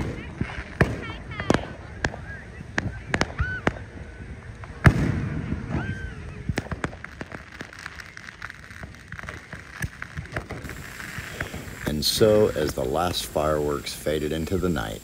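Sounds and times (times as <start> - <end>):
fireworks bangs and pops: 0.0 - 15.0
rumble after firework bang: 4.6 - 7.7.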